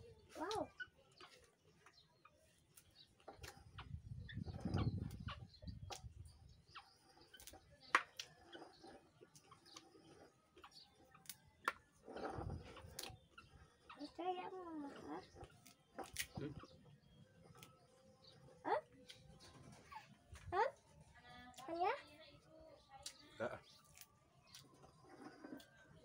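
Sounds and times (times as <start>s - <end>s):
man chewing raw vegetables: 2.5s - 14.0s, 15.2s - 19.5s, 23.0s - 26.0s.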